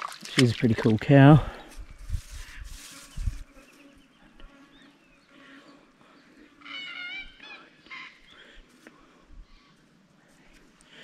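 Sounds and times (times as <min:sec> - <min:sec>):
bird calls: 0:03.0 - 0:08.6.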